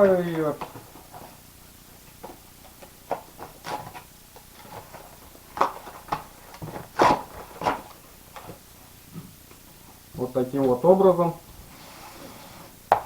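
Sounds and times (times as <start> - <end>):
cardboard box being torn: 6.7 - 7.9.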